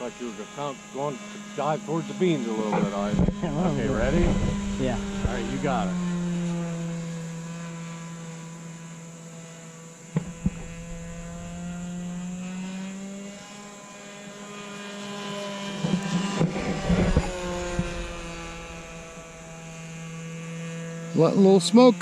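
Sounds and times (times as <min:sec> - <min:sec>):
model plane engine buzzing: 0:00.0 - 0:22.0
sharp knocks: 0:10.1 - 0:13.0.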